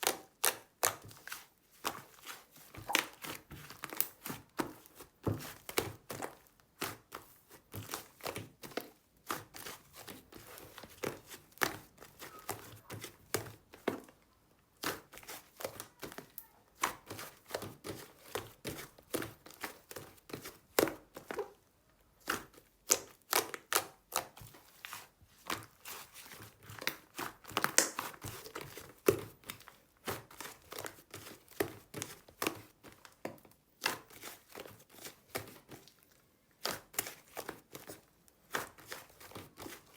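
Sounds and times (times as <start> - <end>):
slime clicking and popping: 27.6 - 28.1.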